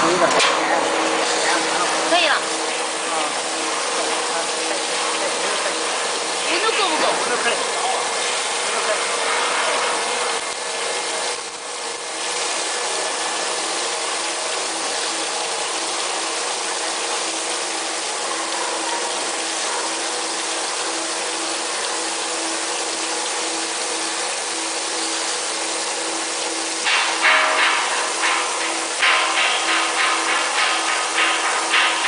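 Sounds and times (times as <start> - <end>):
pulsing machine hum: 0.0 - 32.0
water spray hissing: 24.8 - 32.0
metallic clattering strikes: 26.8 - 32.0.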